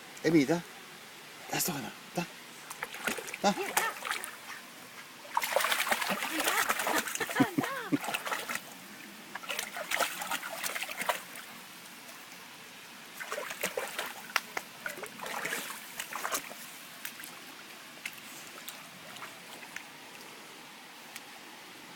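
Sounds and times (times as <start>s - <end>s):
water trickling: 1.6s - 21.4s
dog splashing in water: 2.8s - 4.5s, 5.3s - 8.7s, 9.4s - 11.5s, 13.2s - 17.4s.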